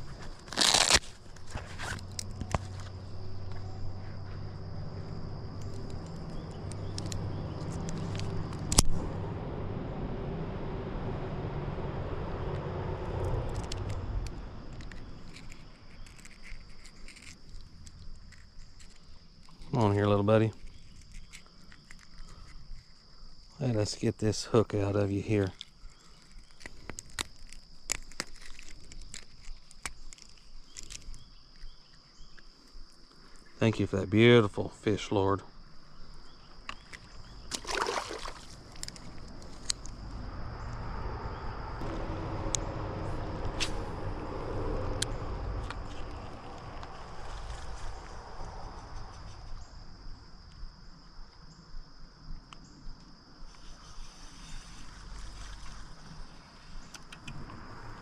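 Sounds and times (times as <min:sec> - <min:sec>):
low engine hum: 0:00.0 - 0:16.1, 0:36.3 - 0:51.0
high-pitched insect drone: 0:01.5 - 0:16.1, 0:37.1 - 0:51.6.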